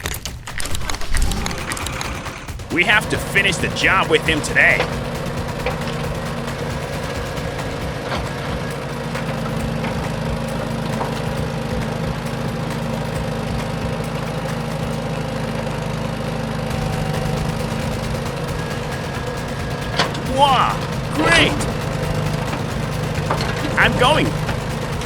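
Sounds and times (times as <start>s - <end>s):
engine running steadily: 1.0s - 25.0s.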